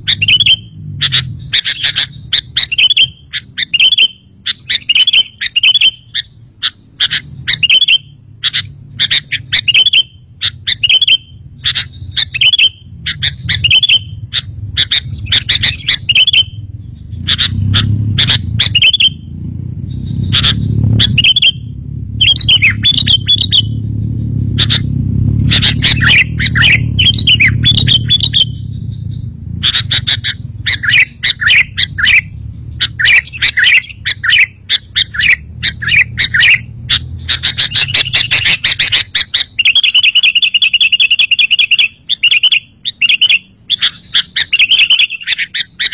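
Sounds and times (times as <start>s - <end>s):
steady low rumble: 0.0s - 39.6s
bird chirping: 0.0s - 45.9s
fast even trill: 20.0s - 41.9s.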